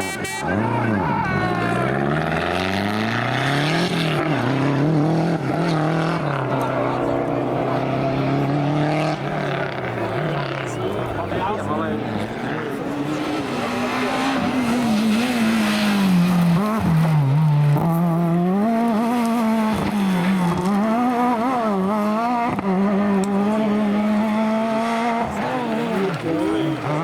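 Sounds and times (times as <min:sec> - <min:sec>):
rally car engine running hard: 0:00.4 - 0:27.0.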